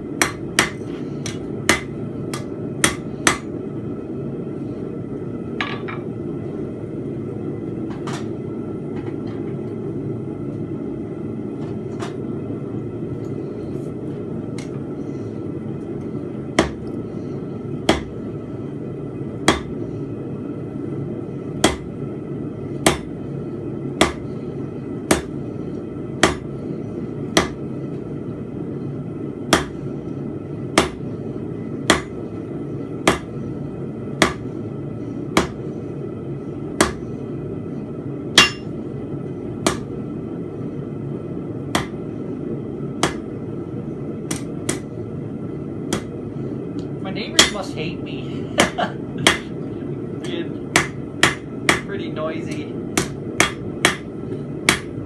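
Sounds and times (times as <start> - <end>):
hammer striking steel on anvil: 0.2 - 3.5, 26.2 - 26.5, 30.8 - 31.0, 31.9 - 32.2, 33.1 - 33.3, 34.2 - 34.4, 38.4 - 38.7, 43.0 - 43.2, 47.4 - 47.7, 48.6 - 49.6, 50.7 - 51.9, 53.0 - 54.1, 54.7 - 55.0.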